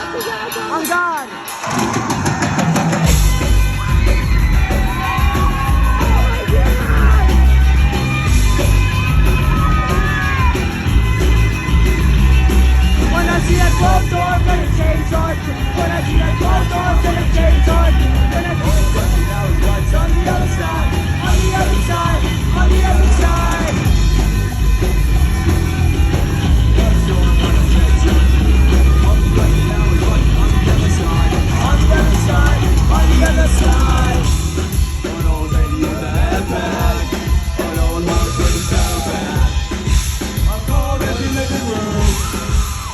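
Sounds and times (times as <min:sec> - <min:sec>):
crowd yelling and whooping: 0:00.0 - 0:42.9
live rock band playing: 0:00.0 - 0:42.9
person singing: 0:03.7 - 0:10.6, 0:12.9 - 0:24.3, 0:26.3 - 0:42.9.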